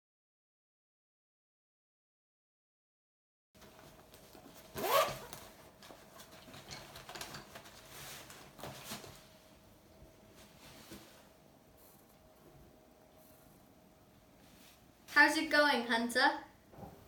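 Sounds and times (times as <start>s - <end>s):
bag rustling: 3.6s - 9.3s
zipper pulled open: 4.6s - 5.5s.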